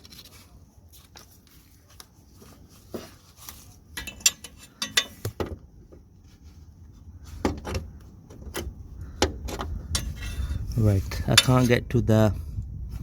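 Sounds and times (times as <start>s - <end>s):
metal tools clinking: 3.9s - 5.4s, 9.5s - 11.8s.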